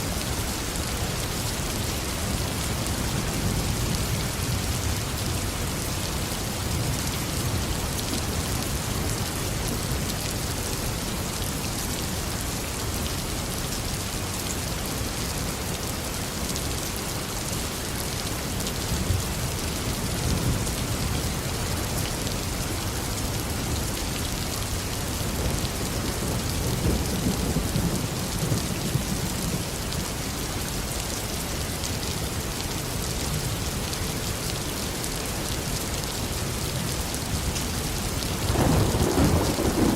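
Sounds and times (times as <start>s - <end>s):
heavy rain: 0.0s - 39.9s
thunder rumbling: 38.4s - 39.9s.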